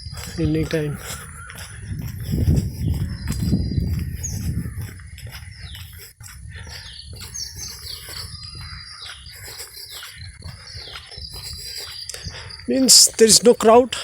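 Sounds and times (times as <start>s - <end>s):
birds calling high notes: 6.6s - 14.0s.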